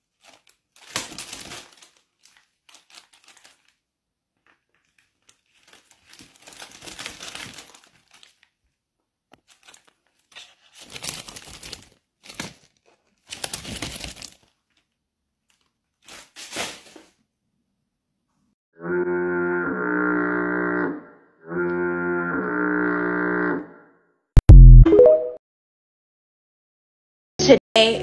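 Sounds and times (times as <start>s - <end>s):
paper crinkling and rustling: 0.0s - 17.2s.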